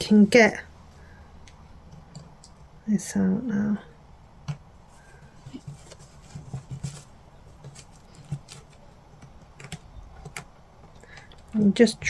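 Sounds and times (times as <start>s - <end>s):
light clicks and taps of packaging: 5.4s - 11.6s.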